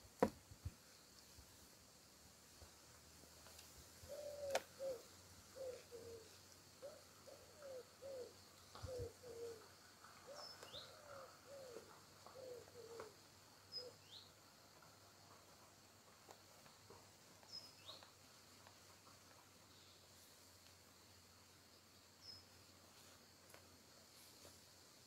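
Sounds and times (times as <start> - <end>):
bird singing low notes: 4.0 - 14.4.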